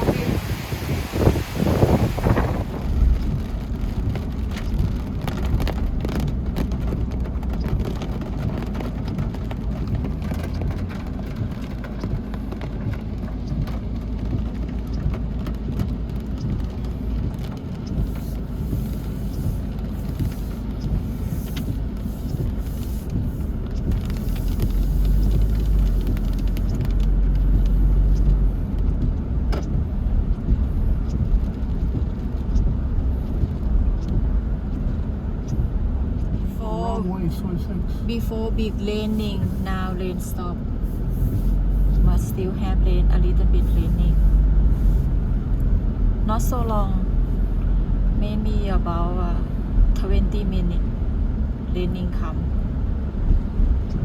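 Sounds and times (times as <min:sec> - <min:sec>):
cars passing: 0:00.0 - 0:05.6.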